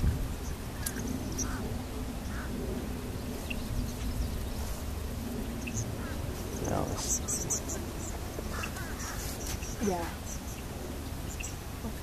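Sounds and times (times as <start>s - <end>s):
steady low rumble: 0.0s - 12.0s
faint bird calls: 0.7s - 2.6s, 5.6s - 12.0s.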